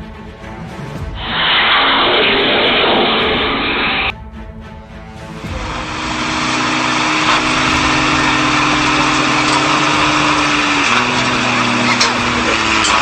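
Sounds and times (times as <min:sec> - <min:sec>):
road noise hiss: 0:01.2 - 0:04.1, 0:05.5 - 0:13.0
vehicle engine droning: 0:05.2 - 0:13.0.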